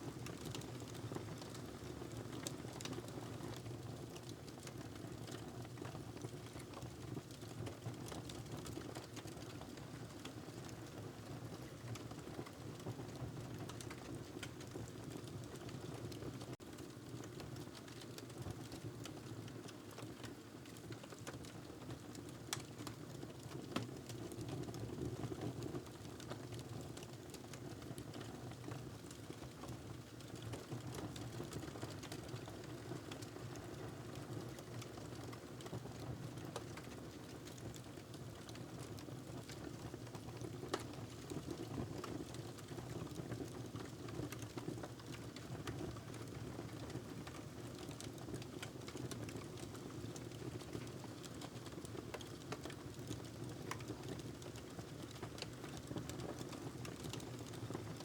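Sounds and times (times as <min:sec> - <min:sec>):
wood fire crackling: 0:27.0 - 0:35.8, 0:39.4 - 0:41.3, 0:42.0 - 0:58.0.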